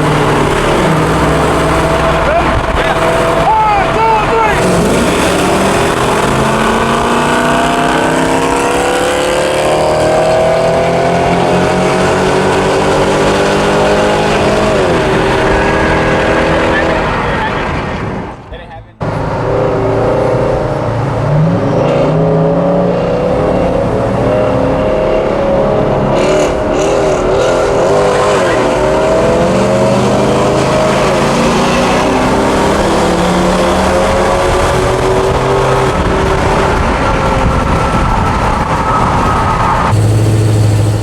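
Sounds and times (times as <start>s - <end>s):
pickup truck engine under load: 31.5s - 41.0s.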